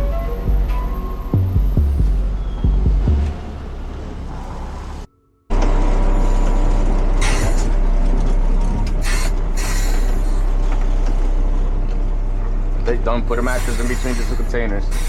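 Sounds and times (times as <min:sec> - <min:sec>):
garbage truck engine drone: 0:00.0 - 0:15.0
short hisses: 0:13.5 - 0:15.0.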